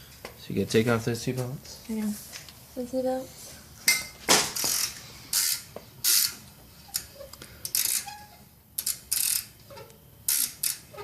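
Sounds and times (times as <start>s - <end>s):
ratchet wrench clicking: 4.6s - 8.2s, 8.8s - 9.6s, 10.3s - 11.0s.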